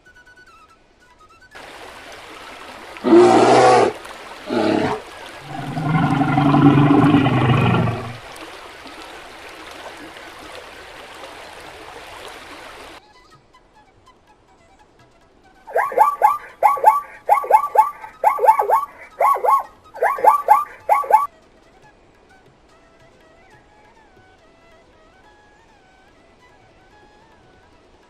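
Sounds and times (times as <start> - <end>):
large animal calling: 3.0 - 8.2, 15.7 - 21.3.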